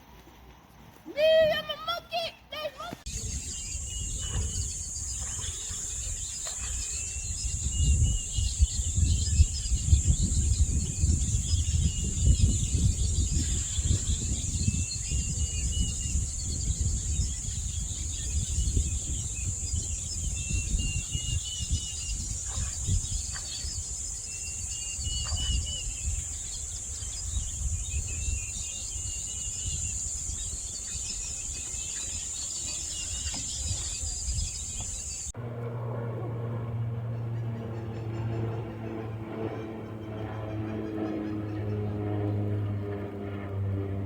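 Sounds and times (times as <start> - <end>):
bird chirps: 3.1 - 35.3
insect drone: 3.1 - 35.3.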